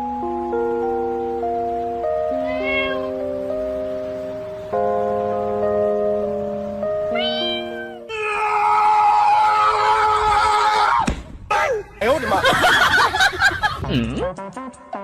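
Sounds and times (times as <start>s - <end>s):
background music: 0.0s - 8.2s, 12.9s - 15.0s
cat meowing: 2.3s - 3.2s, 7.1s - 8.1s.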